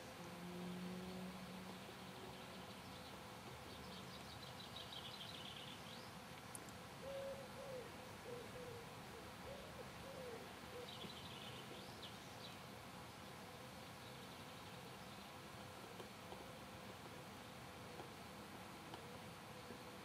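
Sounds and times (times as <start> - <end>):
bird low hooting calls: 7.0 - 11.5.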